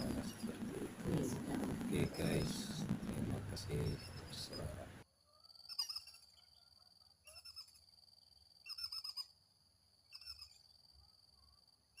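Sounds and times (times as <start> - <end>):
steady high tone: 0.0 - 5.0
squirrel chirping: 3.6 - 4.8, 5.7 - 6.4, 7.2 - 7.8, 8.6 - 9.3, 10.1 - 10.6.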